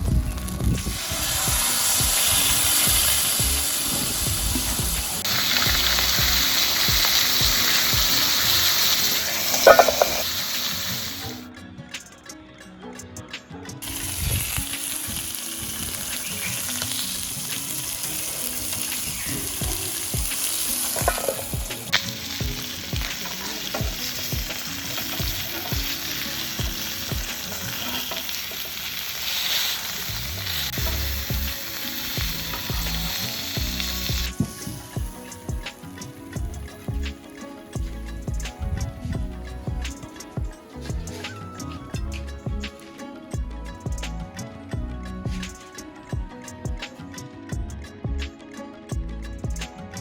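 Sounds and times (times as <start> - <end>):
fish sizzling: 0.0 - 11.5, 13.8 - 43.0
utensils knocking and scraping: 9.4 - 10.4, 19.0 - 28.8.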